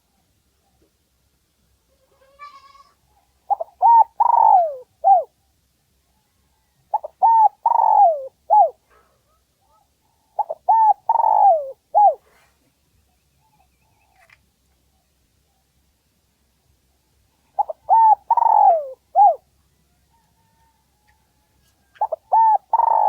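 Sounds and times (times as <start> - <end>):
dove cooing: 3.5 - 5.3, 6.9 - 8.8, 10.3 - 12.2, 17.5 - 19.4, 21.9 - 23.0.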